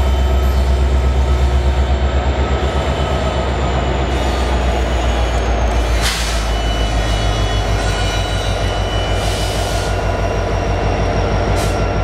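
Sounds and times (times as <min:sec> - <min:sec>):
train cars rumbling: 0:00.0 - 0:12.0
wheel squeal: 0:02.5 - 0:12.0.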